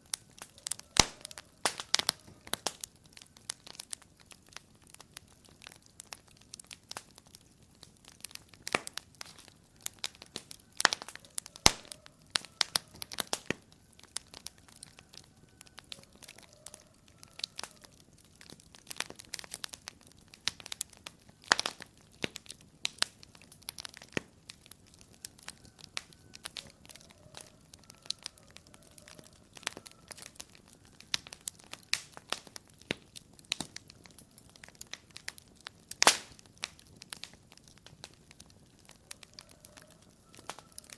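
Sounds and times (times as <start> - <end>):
soft steady hiss: 0.0 - 16.2
wood fire crackling: 0.0 - 40.9.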